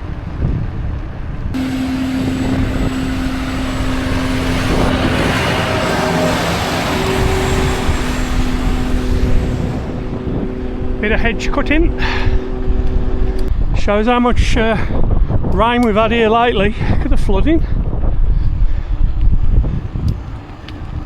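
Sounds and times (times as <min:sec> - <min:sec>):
hedge cutter engine hum: 0:01.6 - 0:14.7
rushing noise: 0:01.6 - 0:14.8.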